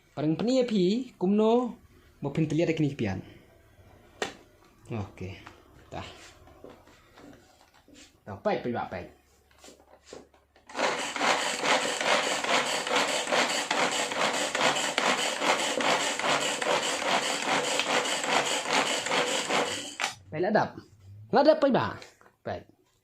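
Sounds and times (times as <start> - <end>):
electric chopper grinding: 10.7 - 20.2.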